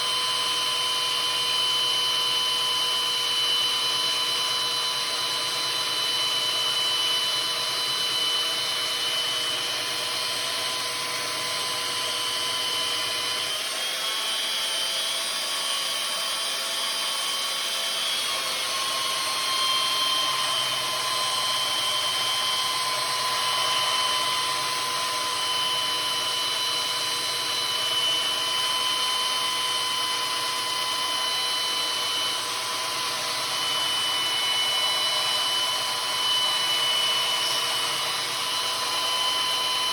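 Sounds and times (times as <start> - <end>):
power tool grinding steel: 18.4 - 39.9.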